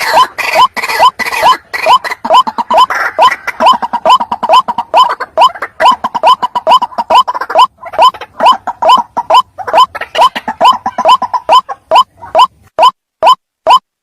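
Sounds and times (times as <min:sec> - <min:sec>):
bird calling rising notes: 0:00.0 - 0:13.8.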